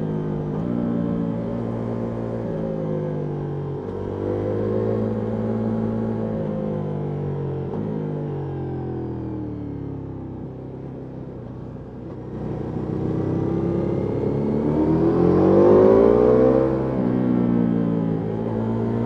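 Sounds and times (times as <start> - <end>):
motorcycle engine revving: 12.4 - 19.0.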